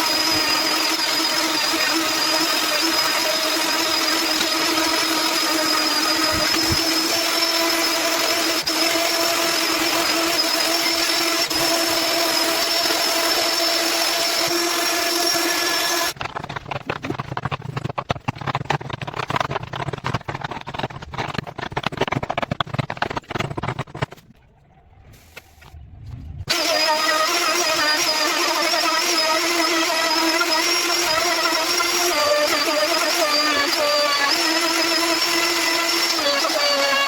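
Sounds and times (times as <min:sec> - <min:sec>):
power tool whining: 0:00.0 - 0:19.8, 0:26.5 - 0:37.0
rapid clicks: 0:16.1 - 0:24.4.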